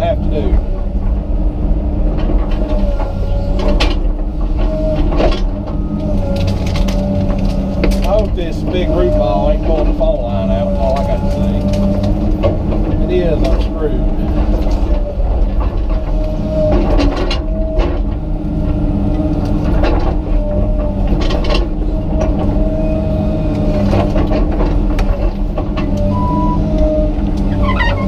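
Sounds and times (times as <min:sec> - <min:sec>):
excavator diesel engine under load: 0:00.0 - 0:28.0
wavering whine: 0:25.4 - 0:28.0.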